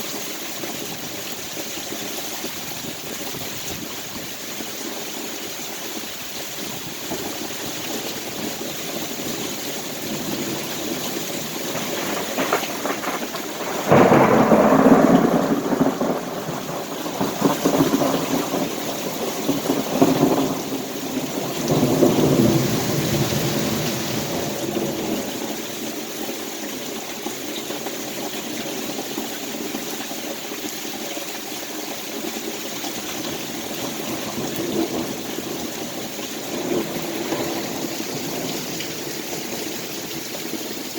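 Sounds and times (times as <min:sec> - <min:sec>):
heavy rain falling: 0:00.0 - 0:40.9
thunder clap and rumbles: 0:07.0 - 0:25.8, 0:33.0 - 0:40.9.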